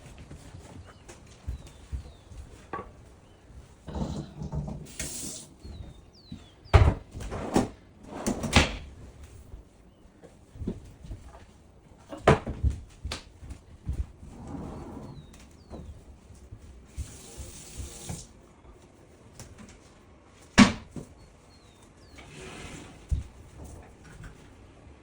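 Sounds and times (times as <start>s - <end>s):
water running: 3.9s - 5.6s.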